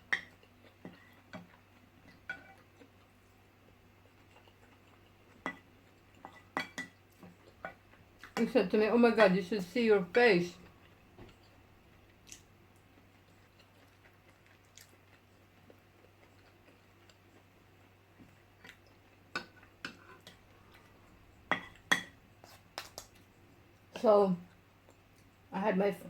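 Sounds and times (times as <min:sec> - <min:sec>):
faint low hum: 0:00.0 - 0:26.0
chewing: 0:00.1 - 0:08.4, 0:10.6 - 0:23.9
cutlery clinking on dishes: 0:02.2 - 0:02.6, 0:06.2 - 0:07.0, 0:21.5 - 0:22.2.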